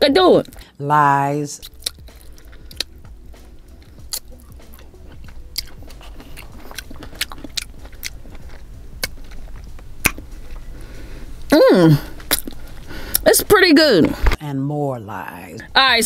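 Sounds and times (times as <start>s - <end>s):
low steady hum: 0.0s - 16.0s
chewing mouth clicks and smacks: 1.6s - 2.9s, 3.8s - 10.2s, 12.2s - 13.2s.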